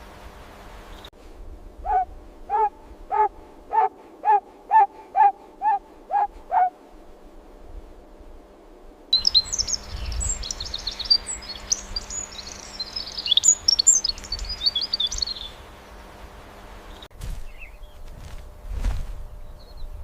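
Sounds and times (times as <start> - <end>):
songbirds chirping and trilling: 0.0 - 1.1, 9.1 - 18.6, 19.2 - 20.0.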